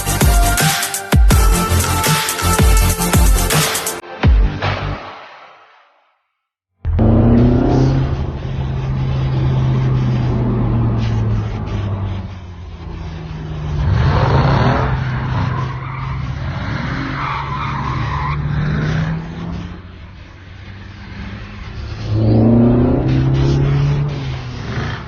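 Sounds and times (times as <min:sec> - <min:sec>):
car engine revving: 0:06.8 - 0:25.0
tyres skidding and squealing: 0:06.9 - 0:25.0.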